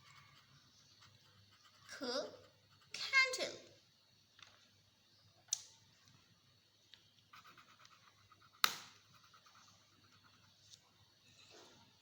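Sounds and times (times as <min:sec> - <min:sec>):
pencil scratching on paper: 0:00.0 - 0:03.2, 0:07.3 - 0:11.6.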